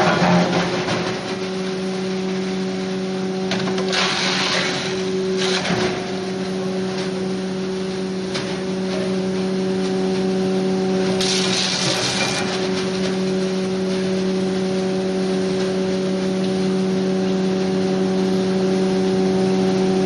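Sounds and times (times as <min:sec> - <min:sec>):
bursts of grinding noise: 0:03.7 - 0:06.0, 0:11.2 - 0:12.7.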